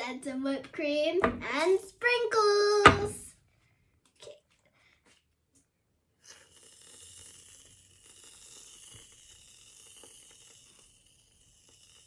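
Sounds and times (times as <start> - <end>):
aerosol can hissing: 6.3 - 12.0.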